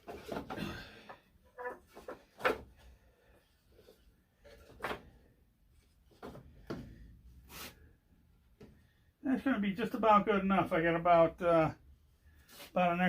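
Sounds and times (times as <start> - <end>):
boards sliding and shuffling: 1.8 - 7.9, 12.4 - 12.8.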